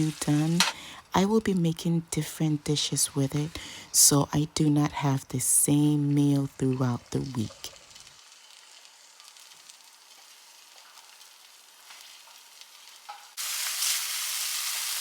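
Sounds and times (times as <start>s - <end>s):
food sizzling in oil: 0.0s - 0.8s, 7.4s - 15.0s.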